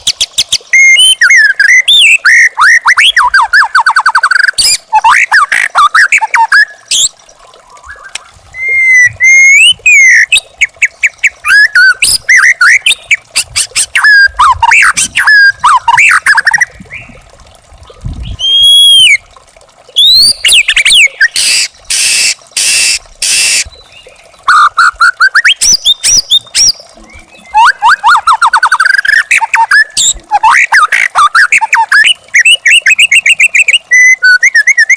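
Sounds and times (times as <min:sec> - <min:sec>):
bird singing varied song: 0:07.7 - 0:13.2, 0:25.2 - 0:30.2.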